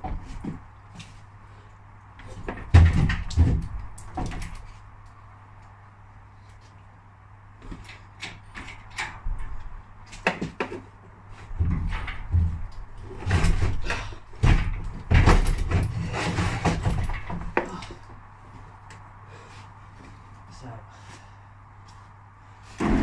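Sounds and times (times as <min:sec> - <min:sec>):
metallic knocks and rattles: 0:11.5 - 0:17.8.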